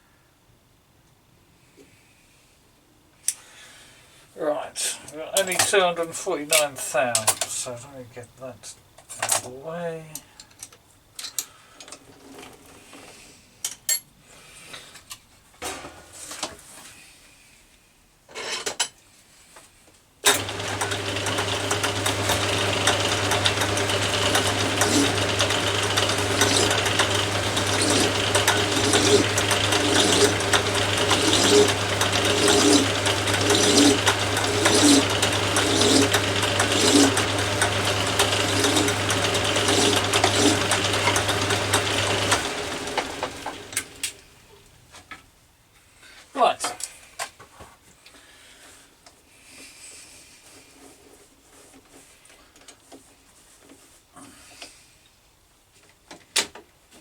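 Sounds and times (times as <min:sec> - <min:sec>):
file stroking spinning metal: 0:20.3 - 0:44.1
metal lathe humming: 0:20.3 - 0:44.4.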